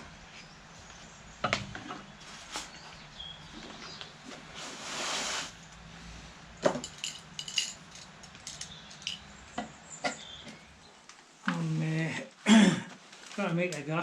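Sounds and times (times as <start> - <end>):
scraping rustle: 1.8 - 8.7
tools clicking and tapping: 6.7 - 10.6
metallic clink: 6.8 - 9.3.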